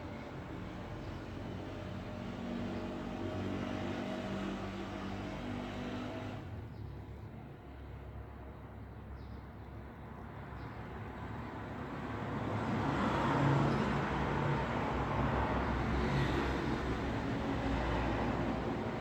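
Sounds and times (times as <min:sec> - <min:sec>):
road traffic rumble: 0:12.6 - 0:19.0.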